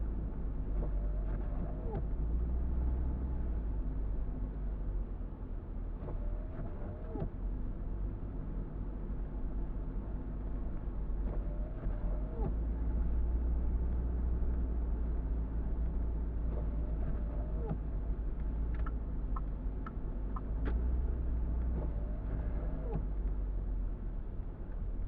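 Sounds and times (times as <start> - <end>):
car road and engine rumble: 0.0 - 25.0
light ticks: 17.6 - 20.8.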